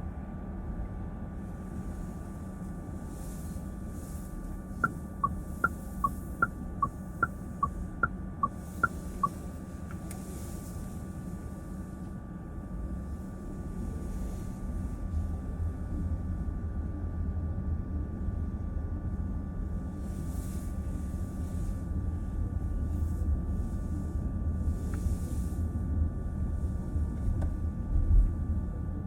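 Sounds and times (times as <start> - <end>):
road and tyre rumble in car: 17.7 - 29.0.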